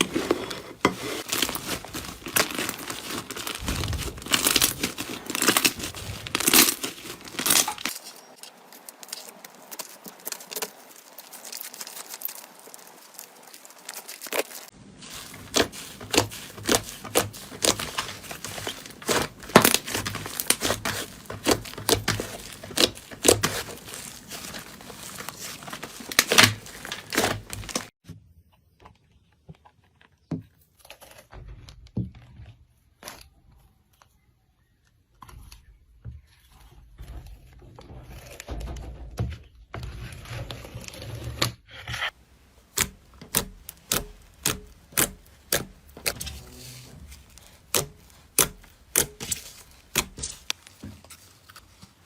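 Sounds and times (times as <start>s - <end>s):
slime crackling and clicking: 15.5s - 27.9s, 42.7s - 46.2s.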